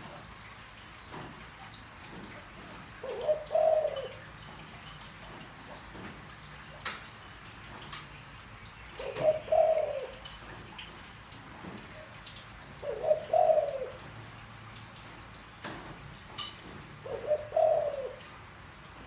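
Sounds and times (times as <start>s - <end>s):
dove cooing: 2.6s - 4.5s, 8.9s - 10.3s, 12.0s - 14.3s, 16.8s - 18.4s.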